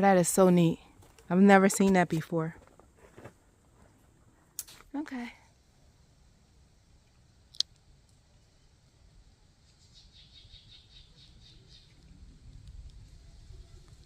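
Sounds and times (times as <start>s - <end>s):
faint low rumble: 10.9s - 14.0s.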